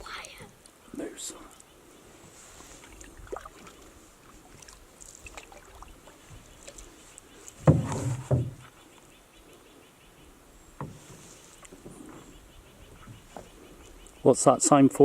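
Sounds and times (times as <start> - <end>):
paddle dipping in water: 1.6 - 9.7, 10.4 - 14.1
small knocks on canoe: 7.5 - 8.8, 10.8 - 12.3.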